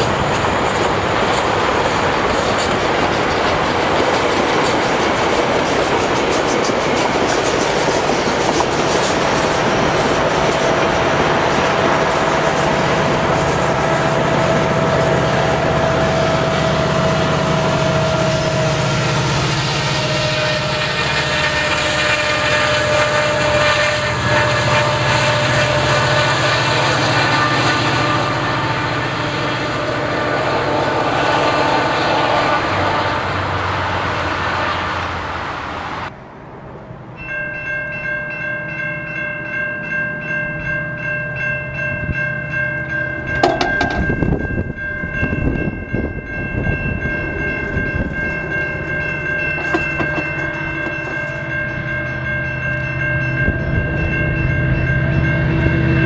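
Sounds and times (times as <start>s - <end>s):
train wheel and rail noise: 0.0s - 56.0s
train horn chord: 10.1s - 35.1s.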